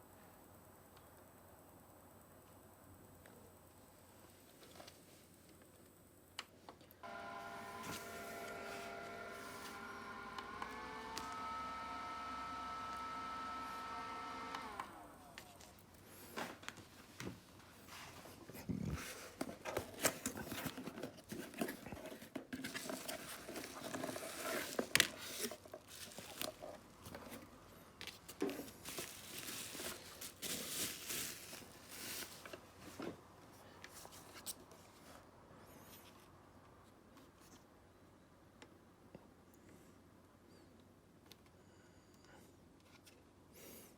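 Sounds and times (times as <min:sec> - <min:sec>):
hands rustling and crinkling: 0:15.3 - 0:35.2.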